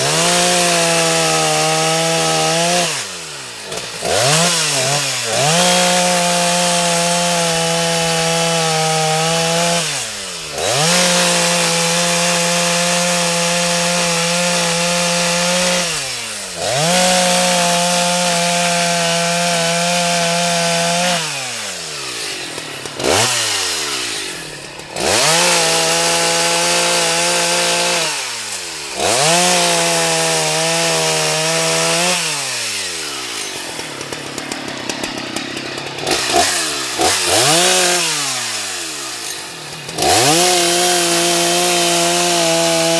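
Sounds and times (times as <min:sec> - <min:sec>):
chainsaw cutting at full throttle: 0:00.0 - 0:42.9.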